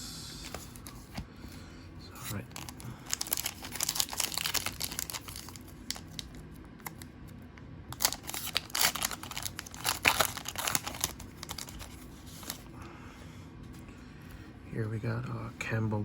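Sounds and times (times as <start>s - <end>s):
wrapper tearing and crinkling: 2.3s - 7.1s, 7.9s - 12.6s.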